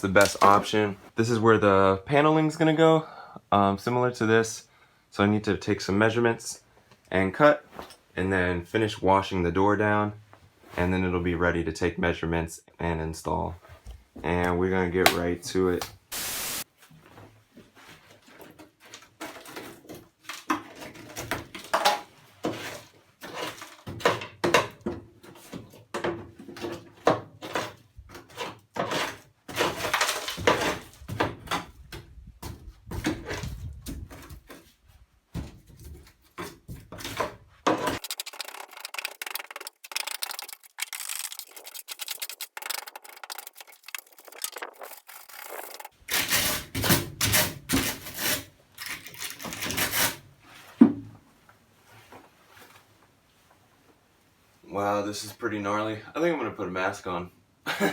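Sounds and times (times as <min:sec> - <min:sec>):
wood scraping and knocking: 0:18.0 - 0:51.1.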